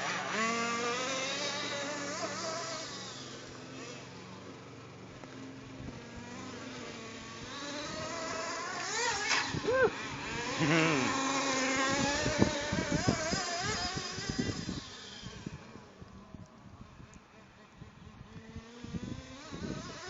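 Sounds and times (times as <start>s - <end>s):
small nitro engine revving: 0.0s - 20.0s.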